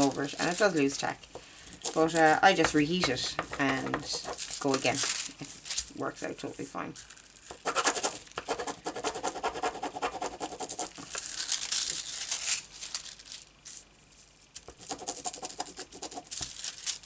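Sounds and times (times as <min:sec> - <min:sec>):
foil sheet crinkling and scratching: 0:00.0 - 0:17.0.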